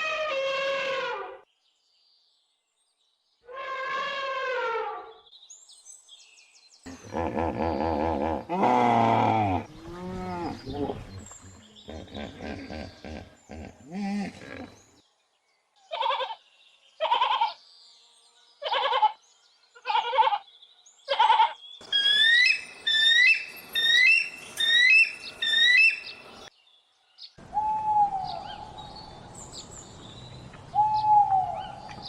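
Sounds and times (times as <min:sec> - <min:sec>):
low animal calls: 0:06.9 - 0:14.8.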